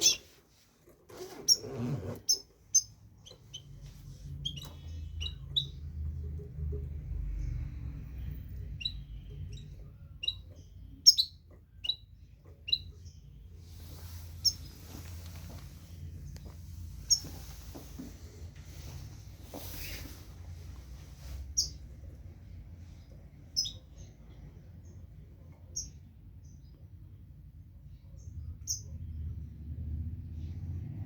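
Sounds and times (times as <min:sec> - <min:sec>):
finch chirping: 0:00.0 - 0:00.4, 0:01.2 - 0:06.6, 0:08.6 - 0:15.3, 0:16.2 - 0:17.8, 0:21.4 - 0:21.9, 0:23.5 - 0:25.0, 0:25.6 - 0:26.8, 0:28.0 - 0:29.0.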